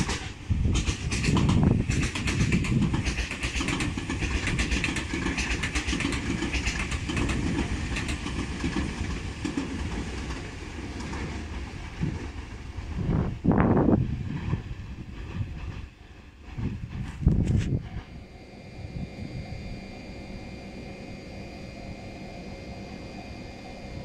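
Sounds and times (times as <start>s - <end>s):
wheels clicking over rail joints: 0.0s - 13.3s
train wheels rumbling: 0.0s - 24.0s.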